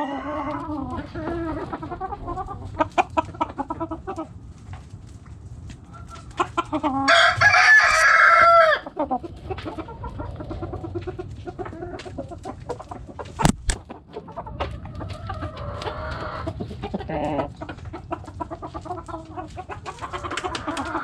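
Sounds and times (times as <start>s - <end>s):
rooster crowing: 0.0s - 0.7s, 7.1s - 8.8s
hens clucking: 0.0s - 21.0s
sharp knocks: 13.4s - 13.8s.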